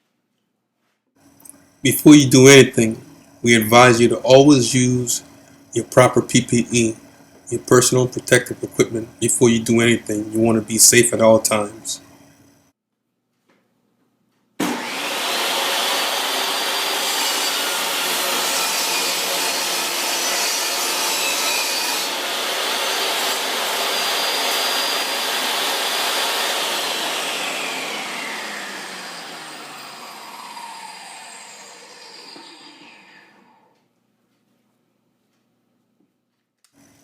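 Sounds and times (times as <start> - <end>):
electric saw running: 14.6 - 33.7.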